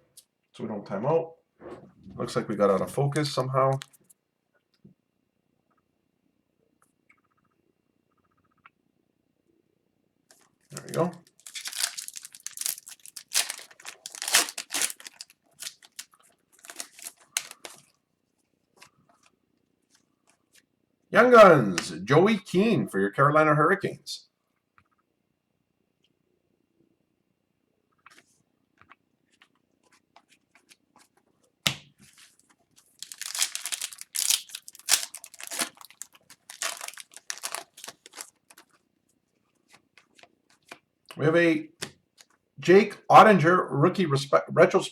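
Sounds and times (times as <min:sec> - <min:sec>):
foil wrapper crinkling: 0:10.7 - 0:18.0, 0:32.2 - 0:38.8
card pack ripping: 0:10.8 - 0:17.8, 0:33.0 - 0:38.7.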